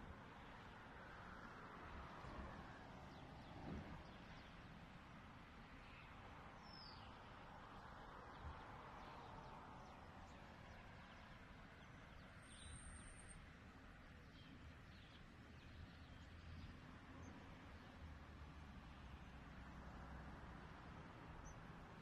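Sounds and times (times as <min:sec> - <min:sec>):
faint outdoor hiss: 0:00.0 - 0:22.0
faint high bird chirps: 0:12.4 - 0:13.4.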